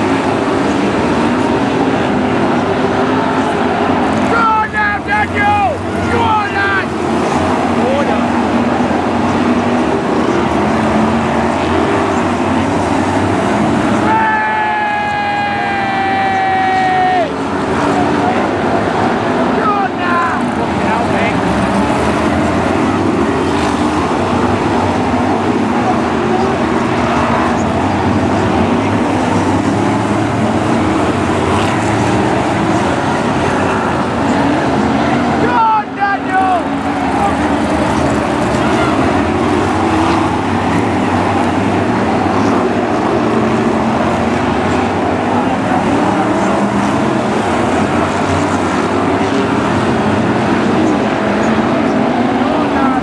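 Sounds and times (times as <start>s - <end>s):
racing car engines: 0.0s - 53.0s.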